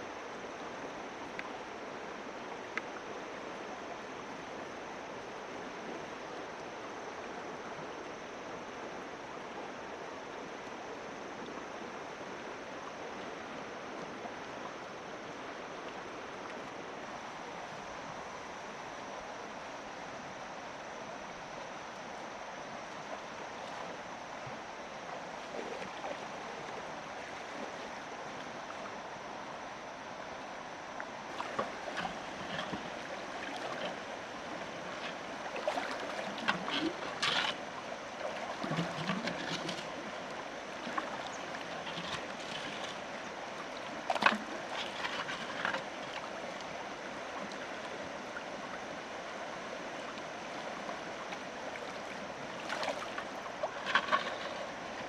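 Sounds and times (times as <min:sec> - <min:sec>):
river water flowing: 0:00.0 - 0:55.0
water splashes: 0:31.3 - 0:55.0.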